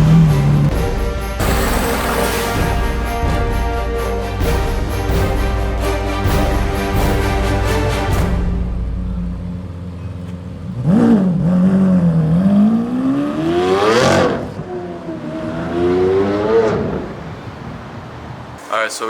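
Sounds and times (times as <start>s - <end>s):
car engine revving: 0.0s - 2.7s, 8.6s - 18.0s.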